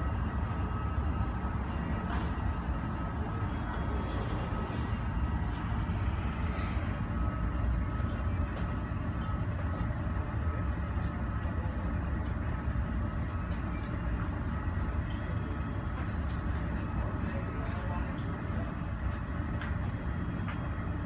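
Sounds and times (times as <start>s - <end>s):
faint even whine: 0.0s - 11.4s
airport apron rumble: 0.0s - 21.0s.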